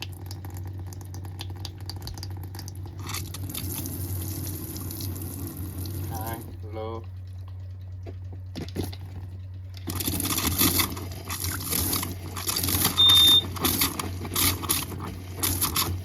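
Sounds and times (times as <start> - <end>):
water pump humming: 0.0 - 16.0
short high beep: 12.9 - 13.5.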